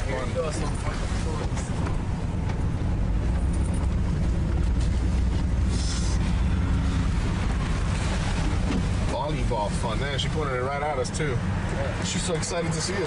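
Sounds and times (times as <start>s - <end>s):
car cabin rumble: 0.0s - 13.0s.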